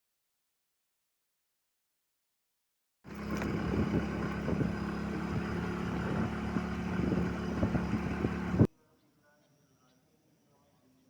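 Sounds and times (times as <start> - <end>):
vehicle engine running: 3.1 - 8.7.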